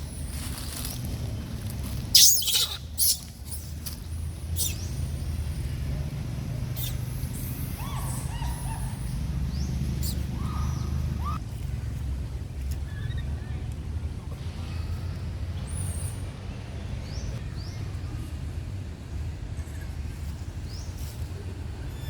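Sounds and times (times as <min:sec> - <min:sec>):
monkeys squealing: 0:02.1 - 0:03.7, 0:04.6 - 0:05.0, 0:06.8 - 0:11.4
monkey coo calls: 0:02.2 - 0:03.3, 0:06.8 - 0:11.4.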